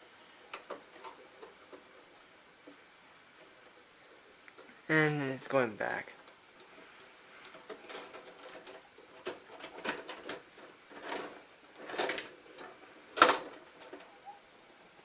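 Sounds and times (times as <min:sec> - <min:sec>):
handling clicks and rustles: 0:05.8 - 0:15.0.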